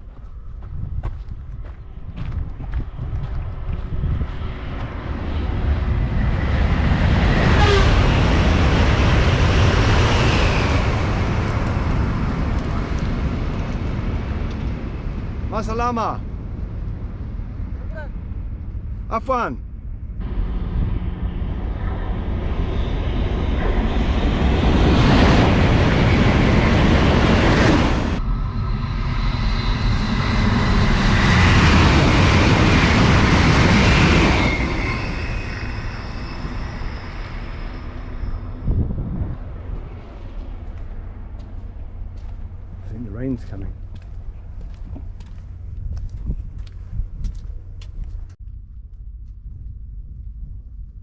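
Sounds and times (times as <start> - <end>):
moving train rumble: 0.0 - 51.0
vehicle passing close by: 20.2 - 35.2
brief squeal: 34.3 - 38.8.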